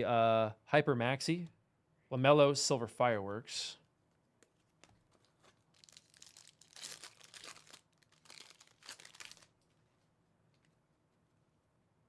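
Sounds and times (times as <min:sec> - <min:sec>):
plastic wrapper crinkling and tearing: 0:04.6 - 0:09.8.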